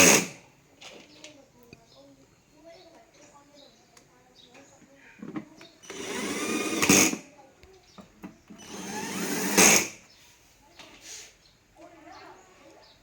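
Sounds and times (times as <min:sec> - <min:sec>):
small motorised tool whirring: 0:00.0 - 0:00.4, 0:05.8 - 0:07.3, 0:08.5 - 0:10.0.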